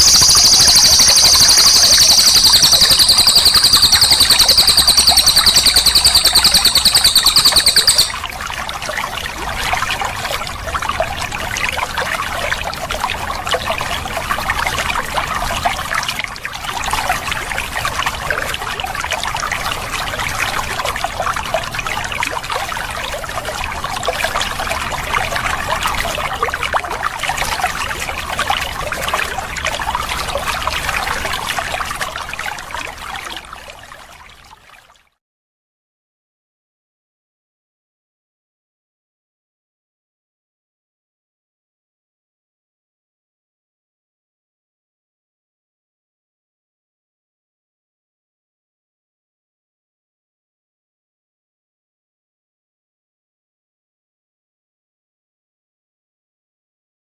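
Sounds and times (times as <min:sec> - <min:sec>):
songbird rapid trill: 0:00.0 - 0:08.2
trickling water: 0:00.0 - 0:35.1.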